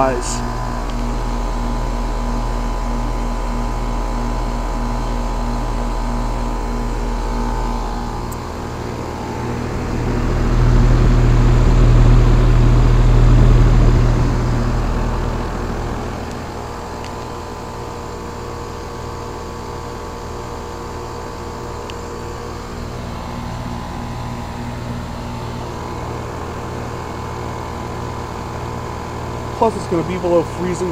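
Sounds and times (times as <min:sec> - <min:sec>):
low rumble and rushing noise: 0:00.0 - 0:17.7
heat pump compressor humming: 0:00.0 - 0:30.9.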